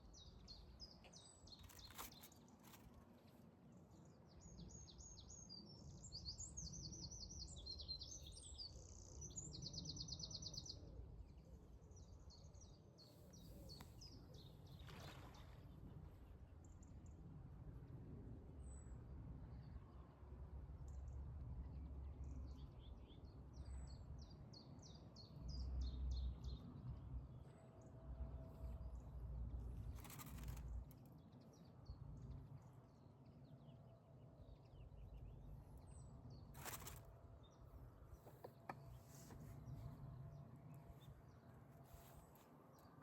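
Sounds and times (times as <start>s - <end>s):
small birds chirping: 0.0s - 3.0s, 29.0s - 32.4s, 34.4s - 43.0s.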